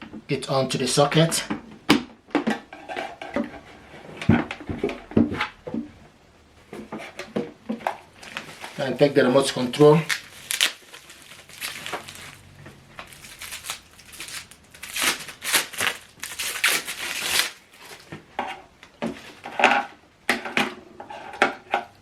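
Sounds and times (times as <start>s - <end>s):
plastic wrapping crinkling: 7.8s - 18.2s.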